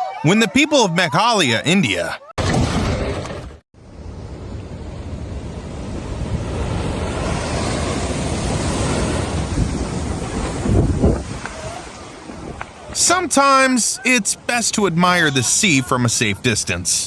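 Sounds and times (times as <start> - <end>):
sea surf breaking: 3.9 - 17.0
wind buffeting microphone: 4.0 - 13.0.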